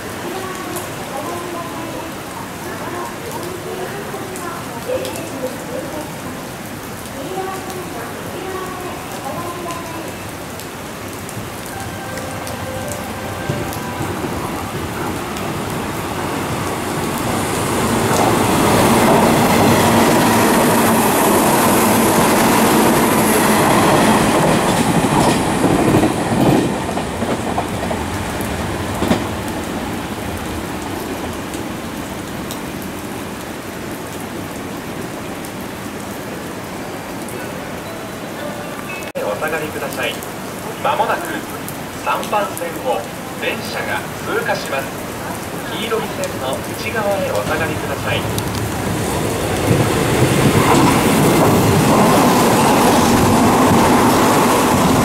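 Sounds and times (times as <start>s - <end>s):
heavy rain hissing: 0.0s - 55.0s
electric train passing at speed: 7.9s - 33.0s, 43.5s - 55.0s.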